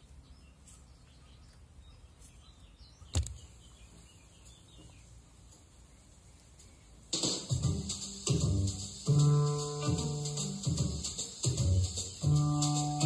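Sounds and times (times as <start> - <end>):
faint birds chirping: 0.0 - 13.0
low outdoor background noise: 0.0 - 13.0
sharp knock: 3.1 - 3.4.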